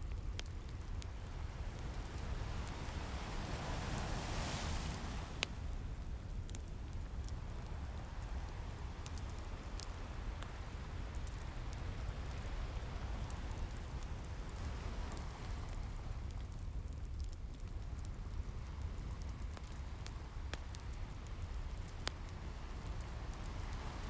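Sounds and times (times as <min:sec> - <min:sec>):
wood fire crackling: 0:00.0 - 0:24.0
ocean waves washing in: 0:01.4 - 0:05.8.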